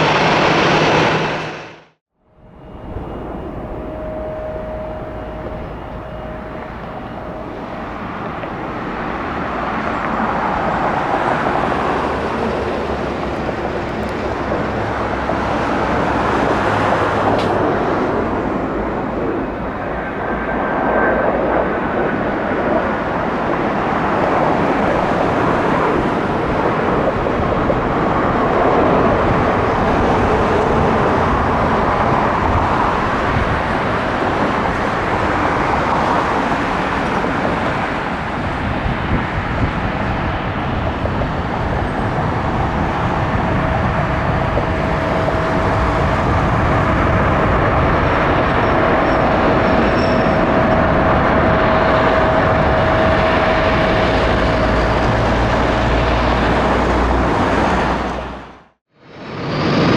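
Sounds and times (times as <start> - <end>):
jet engine rush: 0.0 - 59.9
faint steady whine: 2.2 - 13.4.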